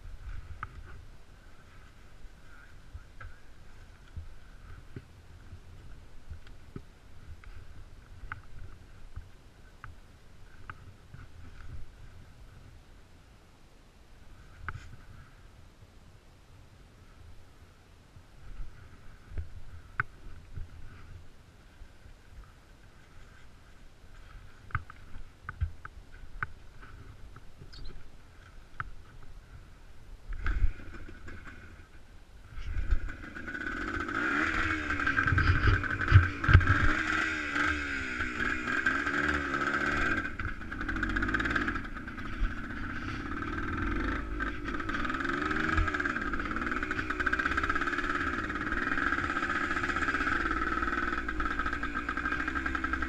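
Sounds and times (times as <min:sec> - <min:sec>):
engine revving: 0:32.8 - 0:53.0.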